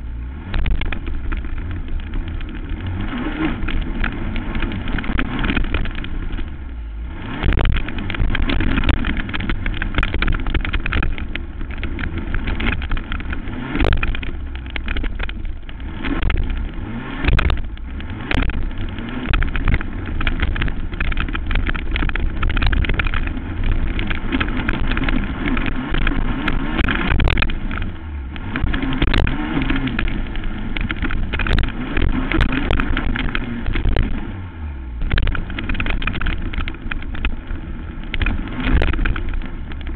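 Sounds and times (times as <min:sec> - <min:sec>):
quad engine running hard: 0:00.0 - 0:39.9.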